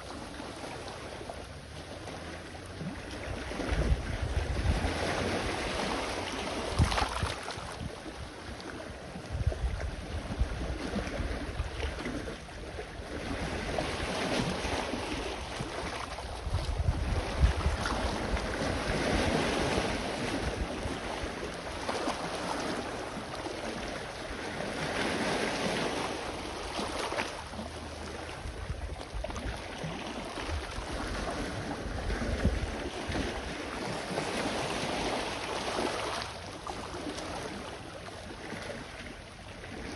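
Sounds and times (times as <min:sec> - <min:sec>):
sea waves washing onto shore: 0:00.0 - 0:39.9
wind buffeting microphone: 0:02.8 - 0:23.0, 0:28.0 - 0:35.9.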